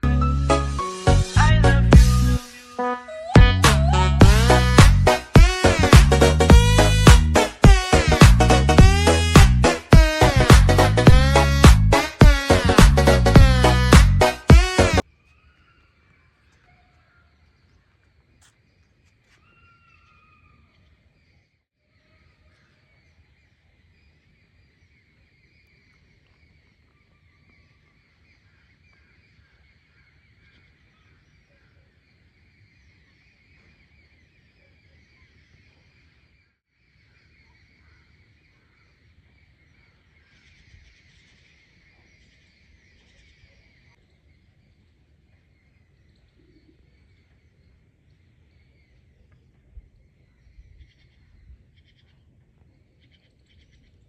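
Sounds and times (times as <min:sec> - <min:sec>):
low outdoor rumble: 0:03.4 - 0:05.1, 0:08.0 - 0:09.7, 0:10.3 - 0:12.0, 0:12.6 - 0:14.2.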